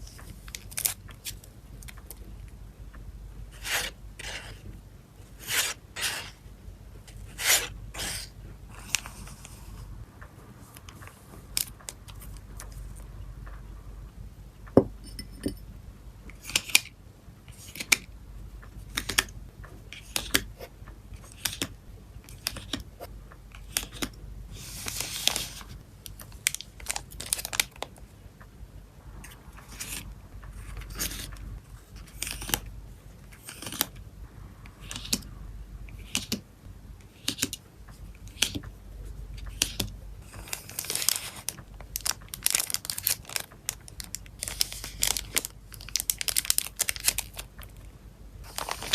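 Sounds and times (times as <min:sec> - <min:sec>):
plastic crinkling: 0:24.8 - 0:28.0, 0:39.5 - 0:48.9
plastic sleeves being handled: 0:39.5 - 0:47.8, 0:48.4 - 0:48.9
packaging rustling: 0:40.4 - 0:47.8, 0:48.4 - 0:48.9.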